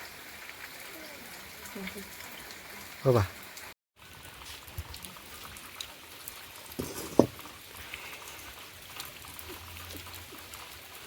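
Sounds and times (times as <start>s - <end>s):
fish frying in hot oil: 4.0s - 11.0s
knocks: 6.8s - 7.4s.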